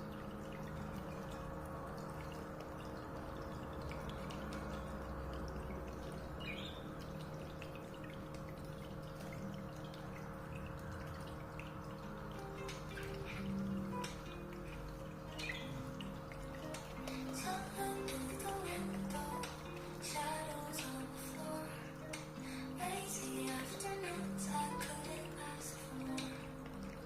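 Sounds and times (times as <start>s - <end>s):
water splashing and dripping: 0.0s - 27.0s.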